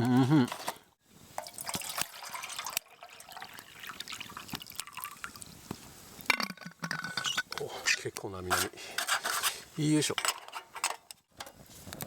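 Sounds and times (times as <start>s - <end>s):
water trickling and dripping: 1.4s - 6.3s.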